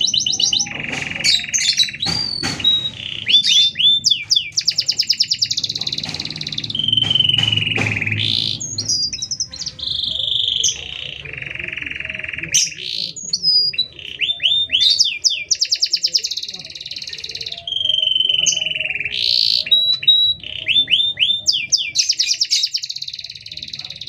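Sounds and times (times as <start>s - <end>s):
canary singing trills: 0.0s - 24.0s.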